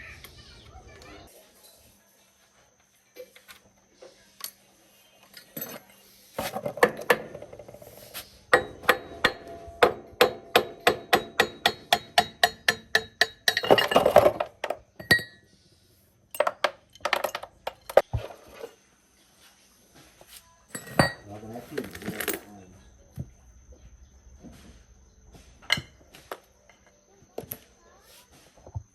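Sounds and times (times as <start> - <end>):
hammer striking metal: 8.5 - 13.7.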